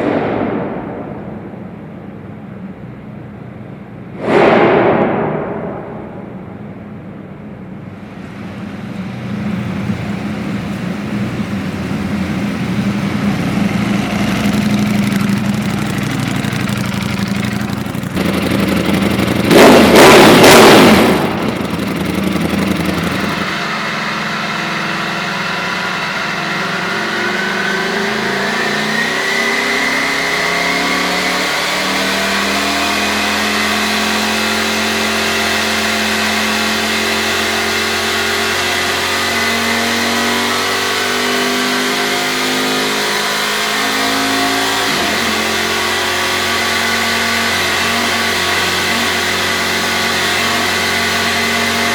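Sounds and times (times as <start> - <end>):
loud exhaust burst: 0.0 - 3.0, 4.0 - 40.6
motorcycle engine running: 8.9 - 28.7, 31.0 - 51.9.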